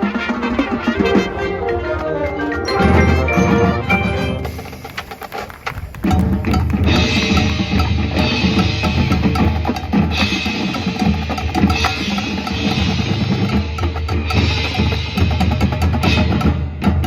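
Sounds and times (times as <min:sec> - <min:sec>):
low brass and winds: 0:00.0 - 0:13.7
drums and percussion: 0:00.0 - 0:17.0.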